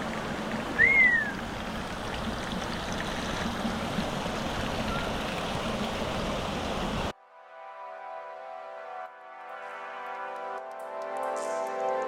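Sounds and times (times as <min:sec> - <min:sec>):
stream water rushing: 0:00.0 - 0:07.1
rising and falling whistle: 0:00.8 - 0:01.4.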